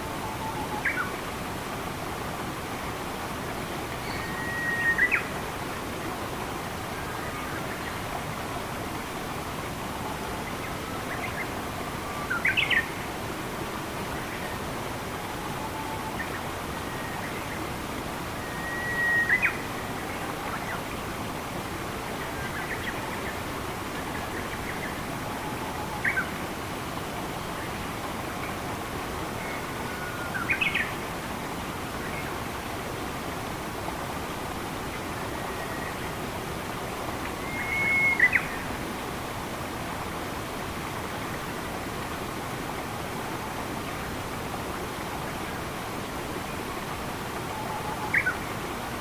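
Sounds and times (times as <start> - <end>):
forest stream rushing: 0.0 - 49.0
running water: 0.0 - 49.0
bird long thin whistle: 4.0 - 5.2, 18.4 - 19.6, 37.4 - 38.6
faint bird chirps: 4.0 - 5.3, 37.4 - 38.7.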